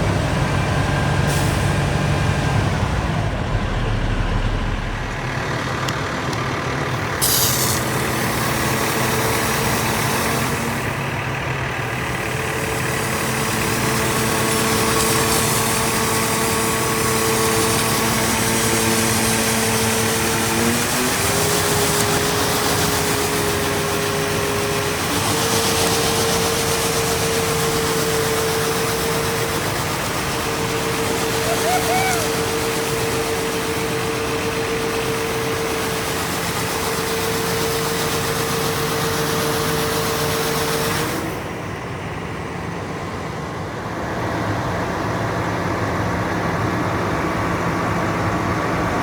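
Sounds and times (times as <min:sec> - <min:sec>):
vacuum truck running with whine: 0:00.0 - 0:49.0
short hiss: 0:07.2 - 0:08.2.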